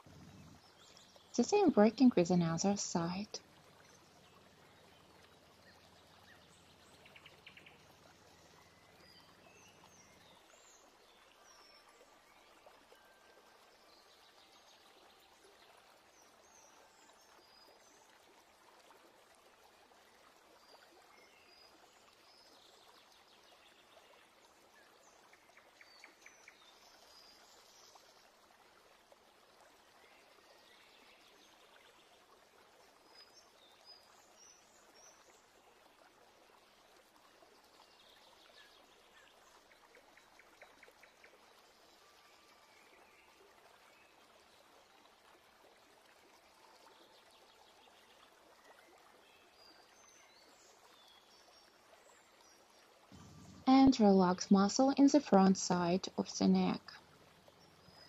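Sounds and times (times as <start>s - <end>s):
low hum: 0.0s - 0.7s, 53.2s - 53.7s
soft steady hiss: 0.0s - 58.0s.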